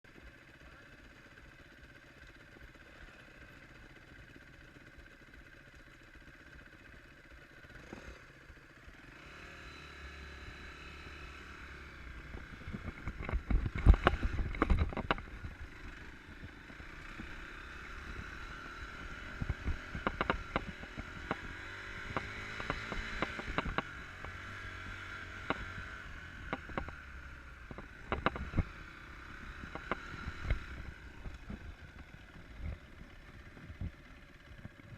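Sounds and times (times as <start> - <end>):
dirt bike engine running: 0.1 - 34.9
sharp clattering knocks: 19.4 - 24.4, 27.7 - 28.7.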